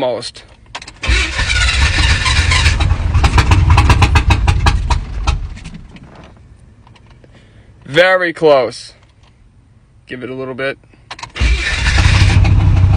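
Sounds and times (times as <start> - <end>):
pickup engine catching and dying: 0.8 - 5.9, 11.3 - 12.9.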